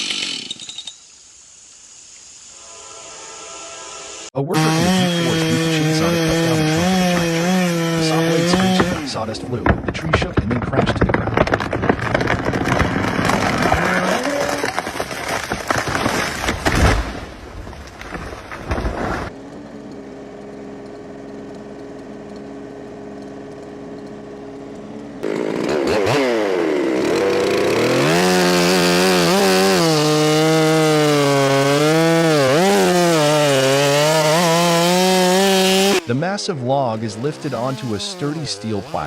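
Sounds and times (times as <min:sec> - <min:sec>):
chainsaw idling and revving: 0:00.0 - 0:00.7, 0:04.5 - 0:09.5, 0:11.4 - 0:15.8, 0:19.3 - 0:39.0
falling tree crackling and crashing: 0:08.6 - 0:19.4.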